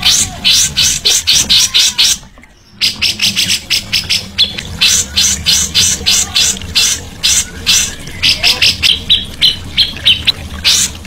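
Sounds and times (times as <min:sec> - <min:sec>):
songbird chattering: 0:00.0 - 0:11.0.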